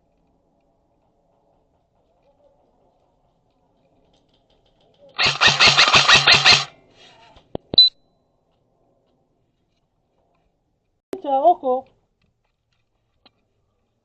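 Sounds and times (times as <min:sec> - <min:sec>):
sharp clicks: 0:04.4 - 0:06.7
airsoft gun full-auto burst: 0:05.2 - 0:06.7.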